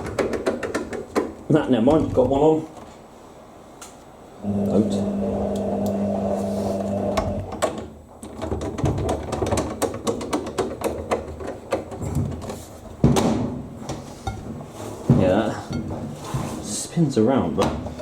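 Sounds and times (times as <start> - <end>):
clicks and rattles: 7.5 - 13.4.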